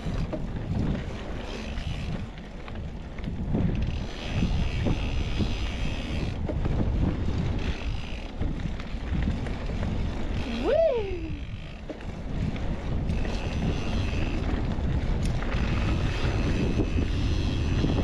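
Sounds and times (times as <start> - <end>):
bike knocking and rattling: 0.0 - 18.0
bike tyres rolling on dirt: 0.0 - 18.0
wind buffeting microphone: 0.0 - 18.0.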